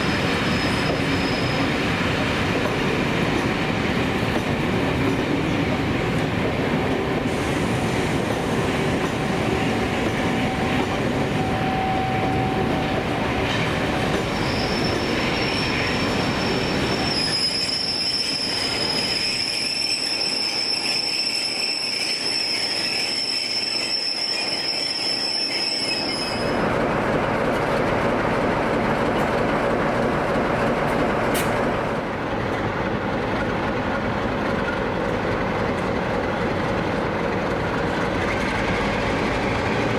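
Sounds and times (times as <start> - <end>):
high-pitched wheel squeal: 0.0 - 1.8, 10.5 - 26.6
train running on rails: 0.0 - 39.9.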